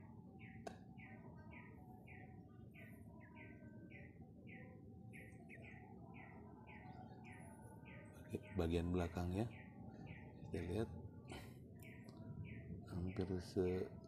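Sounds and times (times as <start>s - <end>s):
bird chirping faintly: 0.1s - 14.0s.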